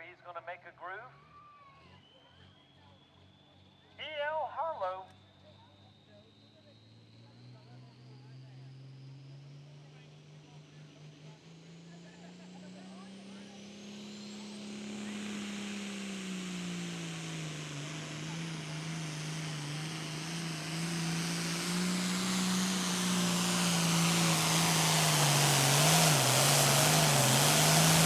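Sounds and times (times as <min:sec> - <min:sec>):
turbo and exhaust rush: 0:05.4 - 0:28.0
tractor diesel engine under load: 0:14.1 - 0:28.0.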